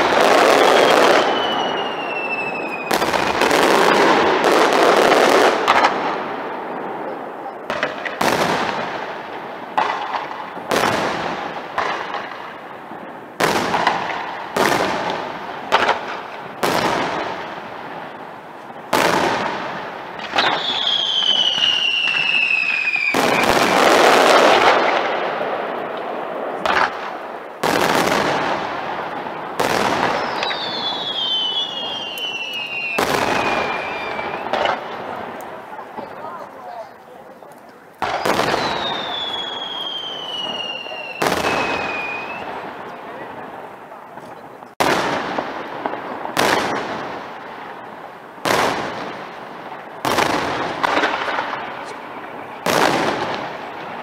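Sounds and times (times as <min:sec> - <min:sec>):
falling firework whistles: 0:00.0 - 0:04.1, 0:20.2 - 0:24.3, 0:29.6 - 0:34.8, 0:38.0 - 0:42.6
fireworks bursting with bangs: 0:00.0 - 0:54.0.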